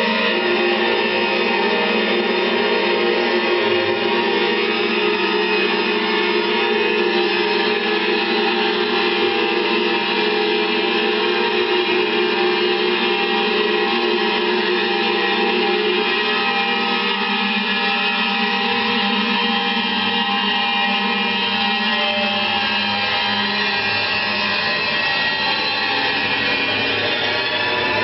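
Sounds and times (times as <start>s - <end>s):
dense drone of held tones: 8.0s - 28.0s.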